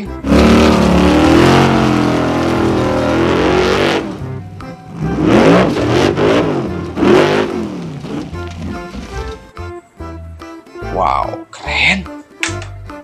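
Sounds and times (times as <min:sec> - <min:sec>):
buggy engine revving hard: 0:00.0 - 0:08.8.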